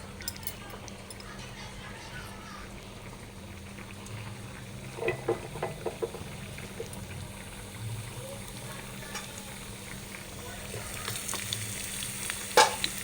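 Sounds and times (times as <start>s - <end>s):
seeds sizzling in hot oil: 0.0s - 13.0s.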